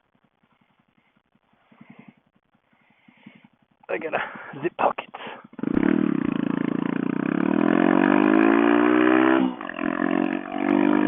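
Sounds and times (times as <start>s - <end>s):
motorcycle engine accelerating: 4.9s - 11.0s.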